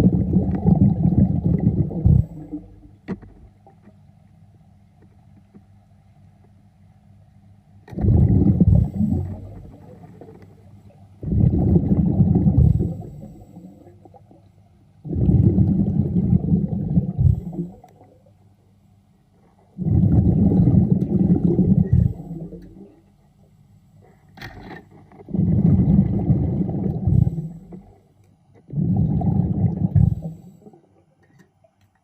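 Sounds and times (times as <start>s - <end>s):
diver exhaling air bubbles: 0.0s - 3.0s, 7.9s - 14.4s, 15.0s - 18.3s, 19.7s - 23.1s, 24.6s - 31.0s.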